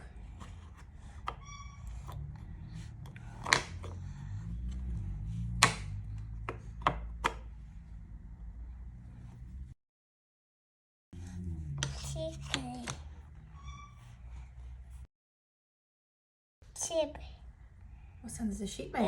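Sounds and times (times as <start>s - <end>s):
wooden puzzle pieces knocking: 0.3s - 4.9s, 5.5s - 7.6s.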